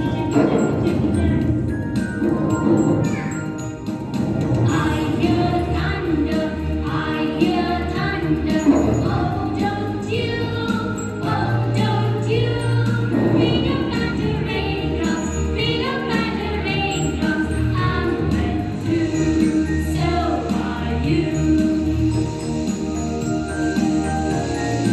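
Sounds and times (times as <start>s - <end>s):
instrumental accompaniment: 0.0s - 24.9s
group of voices singing: 4.5s - 22.9s.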